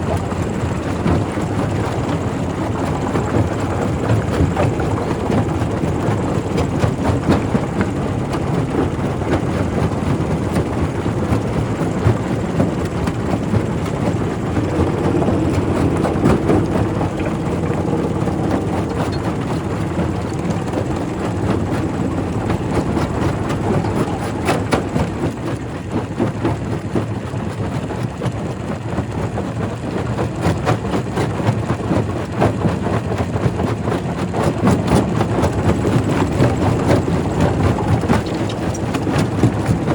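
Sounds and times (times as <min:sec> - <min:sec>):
rock crusher rumbling: 0:00.0 - 0:26.4, 0:33.8 - 0:39.9.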